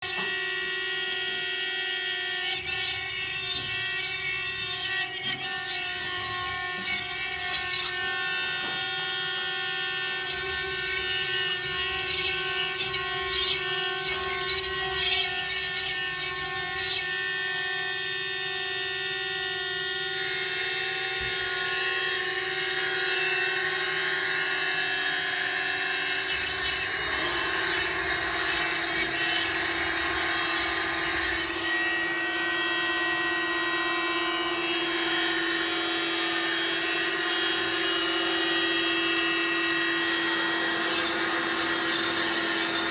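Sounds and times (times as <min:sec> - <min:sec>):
router spindle whine: 0:00.0 - 0:42.9
bit grinding into stone: 0:02.3 - 0:17.3, 0:20.4 - 0:33.0.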